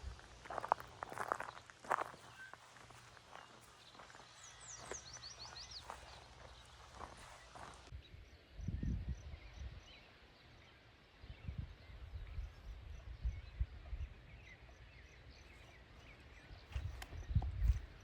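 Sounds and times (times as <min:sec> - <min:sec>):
faint bird chirps: 0:00.5 - 0:10.8.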